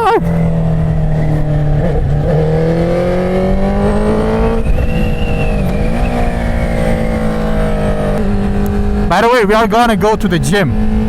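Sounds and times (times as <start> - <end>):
wind noise: 1.1 - 9.1.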